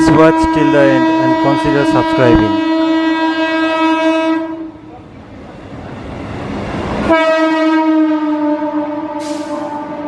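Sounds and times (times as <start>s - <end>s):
electric train horn blast: 0.0s - 4.8s, 7.0s - 10.0s
rush of train noise: 0.0s - 10.0s.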